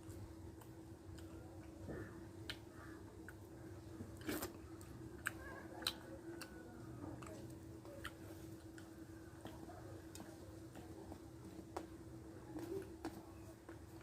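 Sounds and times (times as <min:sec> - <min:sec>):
chewing clicks and smacks: 0:04.2 - 0:06.6, 0:07.2 - 0:10.3.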